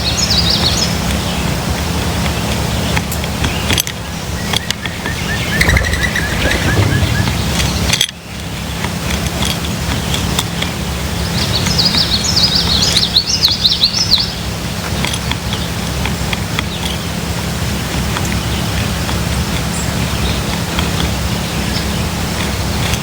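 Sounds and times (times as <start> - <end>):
low background rumble: 0.0 - 23.0
songbird twittering: 2.3 - 8.4, 11.2 - 14.5.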